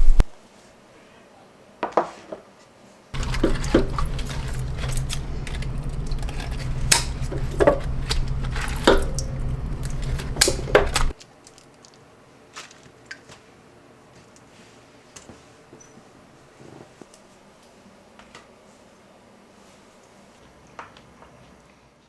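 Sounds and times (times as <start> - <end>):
dishes and utensils clattering: 3.2 - 11.1
faint clicks: 3.2 - 11.2
steady low hum: 3.2 - 11.2.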